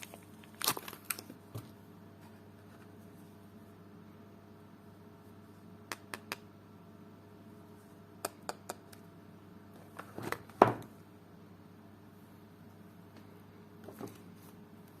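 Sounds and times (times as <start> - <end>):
packaging crinkling rustle: 0.0 - 1.7.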